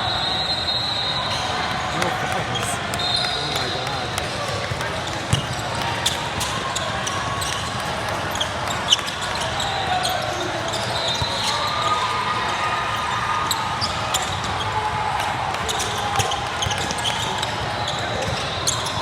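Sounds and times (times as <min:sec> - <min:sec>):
murmur of spectators: 0:00.0 - 0:19.0
basketball bouncing on gym floor: 0:04.6 - 0:06.2
shoe squeaks: 0:08.3 - 0:12.0, 0:15.7 - 0:19.0.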